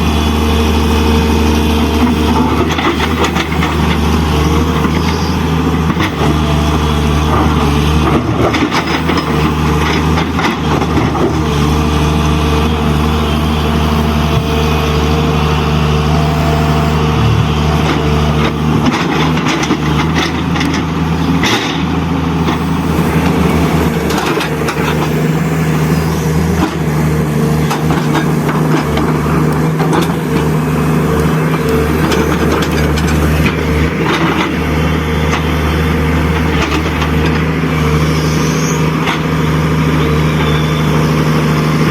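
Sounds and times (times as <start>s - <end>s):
truck engine running: 0.0s - 41.9s.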